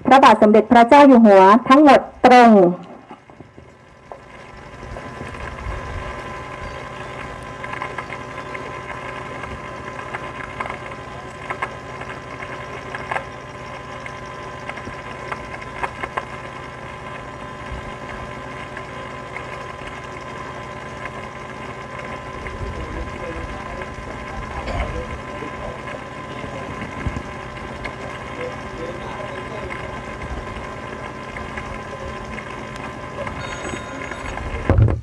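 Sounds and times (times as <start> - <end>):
steady mechanical hum: 0.0 - 35.0.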